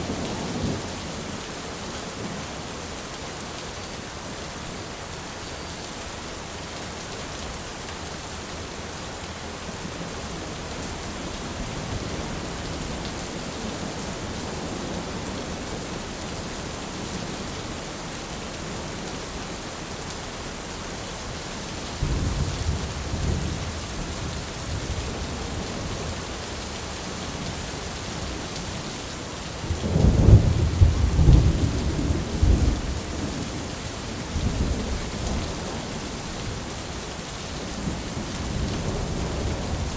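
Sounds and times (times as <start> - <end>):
steady rain falling: 0.0 - 39.9
thunder rumbling: 29.6 - 33.4.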